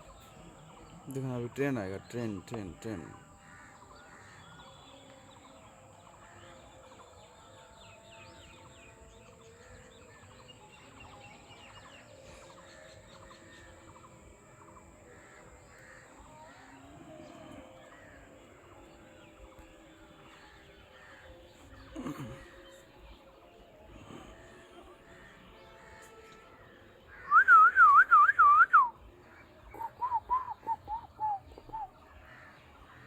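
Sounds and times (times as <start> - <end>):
birds chirping and calling: 29.3 - 33.0.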